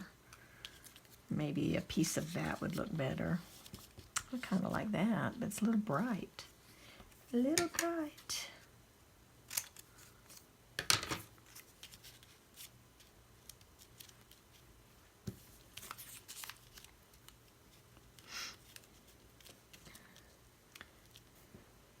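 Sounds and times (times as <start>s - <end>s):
paper rustling and scraping: 0.6s - 4.7s, 15.4s - 17.8s.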